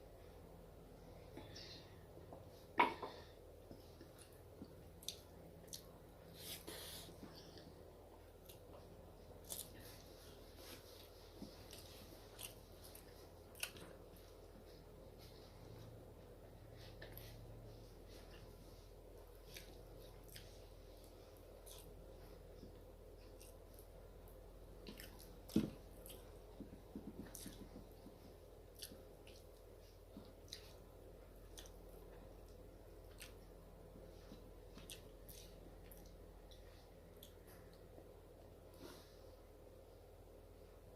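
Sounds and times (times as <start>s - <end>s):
low steady hum: 0.0s - 40.9s
soft chewing: 0.0s - 40.9s
mouth clicks and smacks chewing: 28.7s - 30.8s.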